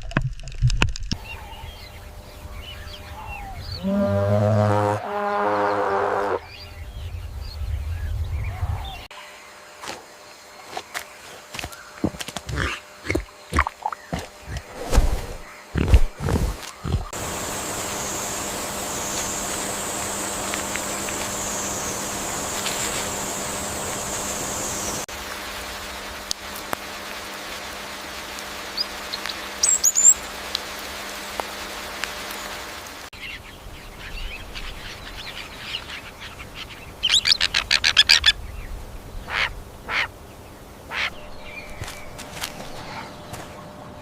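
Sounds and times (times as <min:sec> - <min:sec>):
bird calls: 0:01.2 - 0:05.0, 0:10.5 - 0:25.0, 0:28.7 - 0:30.2, 0:33.2 - 0:44.0
steady hiss: 0:14.2 - 0:37.0.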